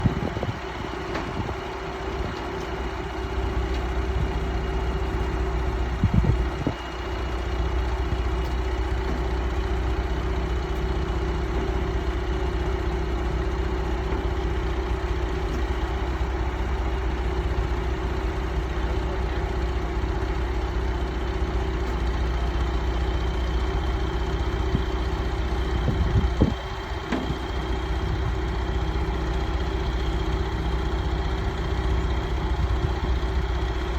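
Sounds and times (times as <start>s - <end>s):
heavy machinery engine running: 0.0s - 33.9s.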